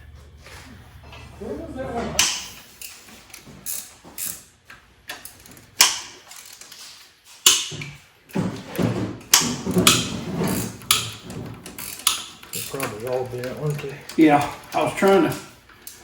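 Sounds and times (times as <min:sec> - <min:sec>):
metal tools clinking and clattering: 0:09.4 - 0:16.0.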